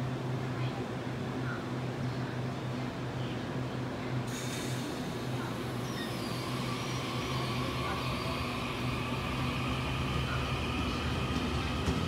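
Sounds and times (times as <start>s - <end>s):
electric train low hum: 4.3s - 12.0s.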